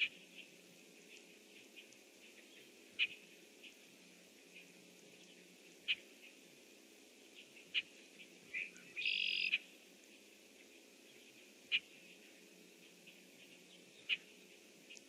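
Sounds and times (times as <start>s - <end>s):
blackbird sharp calls: 1.1s - 3.8s, 7.4s - 9.7s, 11.7s - 12.0s, 13.1s - 14.4s
blackbird buzzy call: 1.7s - 3.8s, 7.6s - 9.7s, 11.7s - 12.0s.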